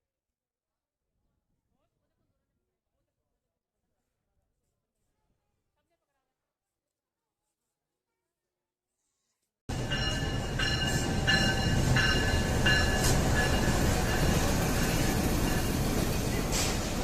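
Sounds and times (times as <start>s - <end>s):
train rumbling on track: 9.7s - 17.0s.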